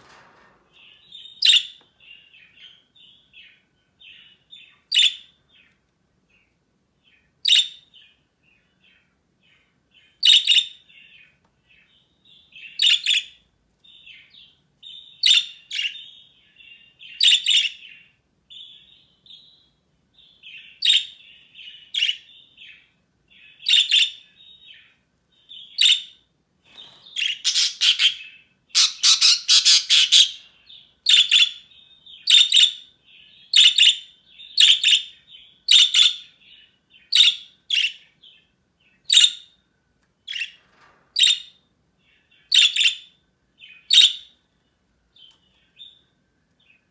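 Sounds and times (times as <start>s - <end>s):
rapid bird chattering: 26.8s - 28.2s, 28.8s - 30.4s
budgerigars chirping: 26.8s - 30.4s.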